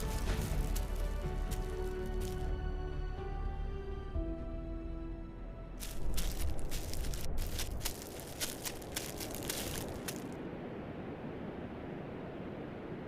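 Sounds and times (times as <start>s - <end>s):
crackling and rustling: 0.0s - 2.5s, 5.8s - 10.4s.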